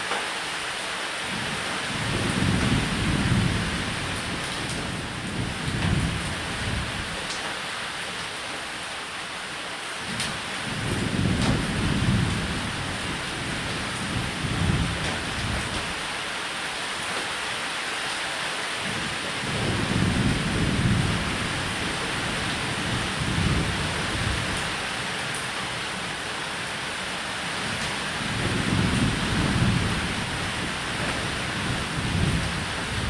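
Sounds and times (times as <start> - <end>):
rain falling on a roof: 0.0 - 33.0
low rolling thunder: 1.9 - 7.2, 10.6 - 16.1, 18.8 - 26.7, 27.5 - 33.0.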